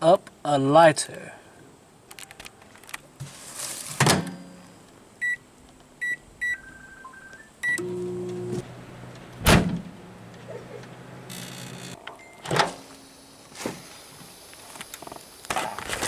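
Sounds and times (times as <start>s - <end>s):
microwave door banging shut: 4.0s - 4.4s, 9.4s - 9.9s
keypad beeps: 6.0s - 7.9s
microwave oven humming: 7.6s - 13.4s
loud thump: 9.4s - 10.0s.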